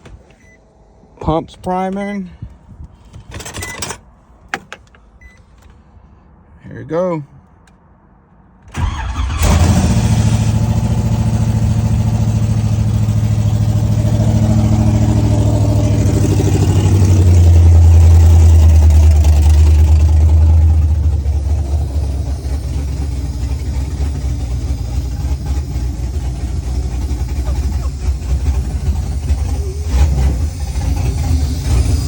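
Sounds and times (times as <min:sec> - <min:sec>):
car engine idling: 0:08.8 - 0:32.0.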